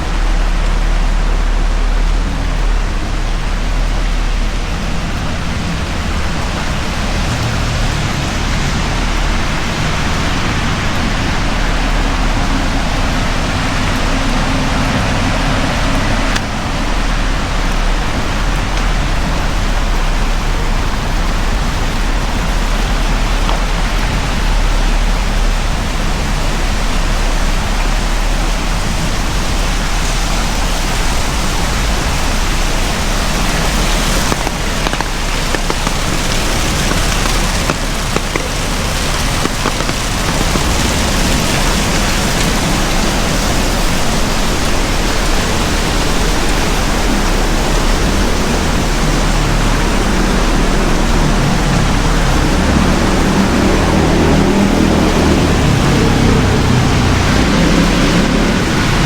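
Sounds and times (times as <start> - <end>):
low rumble: 0.0 - 47.2
heavy rain: 0.0 - 59.0
raindrop ticks: 0.0 - 59.0.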